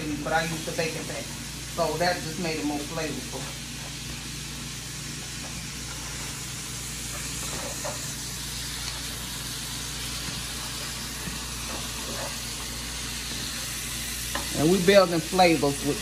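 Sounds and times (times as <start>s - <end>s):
food sizzling in a skillet: 0.0s - 16.0s
spatula scraping: 11.6s - 12.6s.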